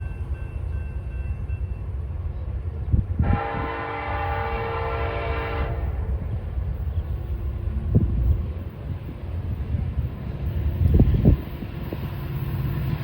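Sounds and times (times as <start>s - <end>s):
locomotive air horn blast: 3.2s - 6.2s.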